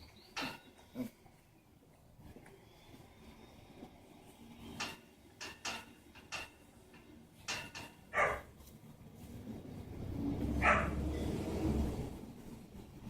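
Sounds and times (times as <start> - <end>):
dogs yipping and barking: 8.1 - 8.5, 10.6 - 11.1.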